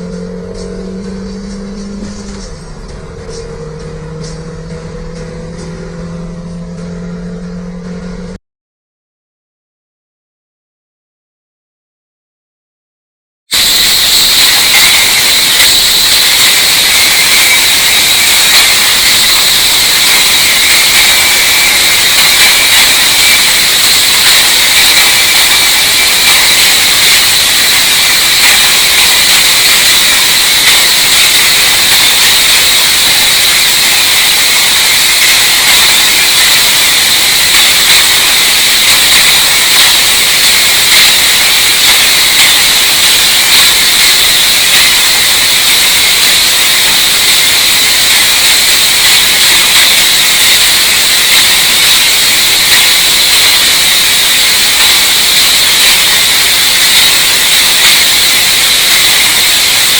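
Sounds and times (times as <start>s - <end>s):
loud high-pitched hissing: 0.0s - 6.2s, 13.5s - 59.9s.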